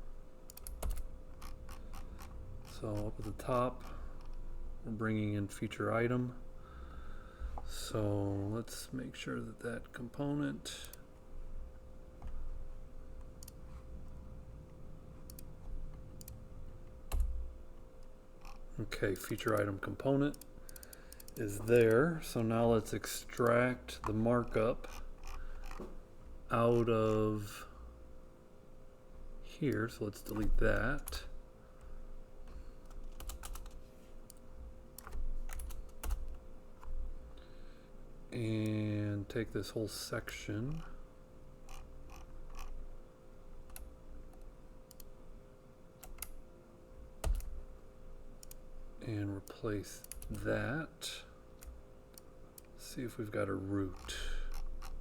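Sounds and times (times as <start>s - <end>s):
faint electrical hum: 0.0s - 55.0s
computer clicks: 0.5s - 4.4s, 13.3s - 13.6s, 15.2s - 16.4s, 19.2s - 22.0s, 32.8s - 34.4s, 35.0s - 36.9s, 43.7s - 45.1s, 46.0s - 46.4s, 47.2s - 47.5s, 48.4s - 48.6s, 50.0s - 50.4s
keyboard typing: 0.5s - 4.4s, 17.1s - 17.4s, 18.4s - 22.0s, 32.8s - 34.4s, 35.0s - 36.4s, 46.0s - 46.3s, 47.2s - 47.6s.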